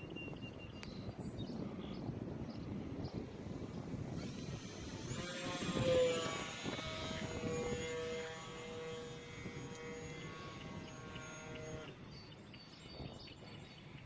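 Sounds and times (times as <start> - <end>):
rc plane motor whining: 3.2 - 12.0.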